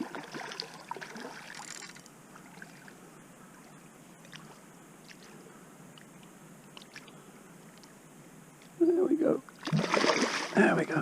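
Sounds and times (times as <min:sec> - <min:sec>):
river water flowing: 0:00.0 - 0:11.0
faint ticks: 0:01.5 - 0:03.0, 0:03.6 - 0:08.0.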